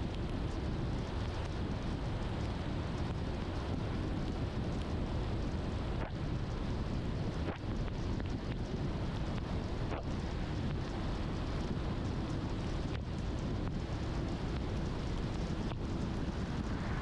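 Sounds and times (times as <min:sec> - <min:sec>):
car road rumble: 0:00.0 - 0:17.0
tyre and rain hiss: 0:14.0 - 0:17.0.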